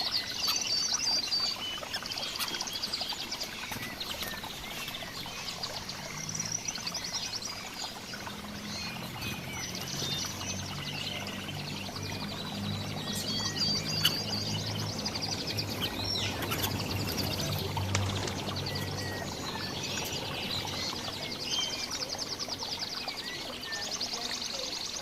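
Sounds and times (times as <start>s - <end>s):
songbirds chirping and trilling: 0.0s - 25.0s.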